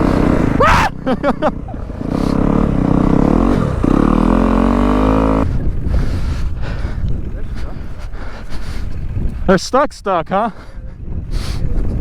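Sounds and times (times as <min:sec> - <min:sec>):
dirt bike engine revving: 0:00.0 - 0:05.5.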